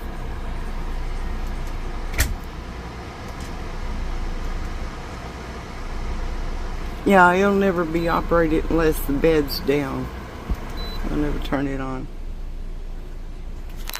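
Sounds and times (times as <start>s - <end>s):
air conditioner fan rushing: 0.0s - 13.9s.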